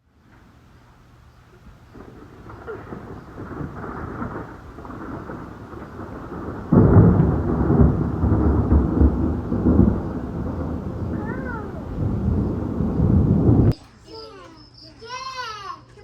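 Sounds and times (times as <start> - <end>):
thunder rumbling: 0.0 - 13.8
loud thunder clap: 1.5 - 13.8.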